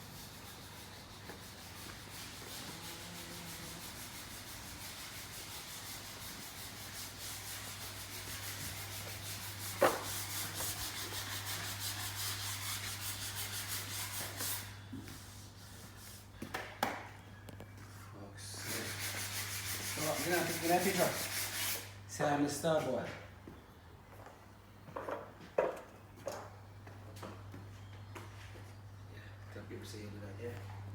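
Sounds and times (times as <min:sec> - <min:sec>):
hand sanding strokes: 0:00.0 - 0:16.4, 0:18.4 - 0:22.0.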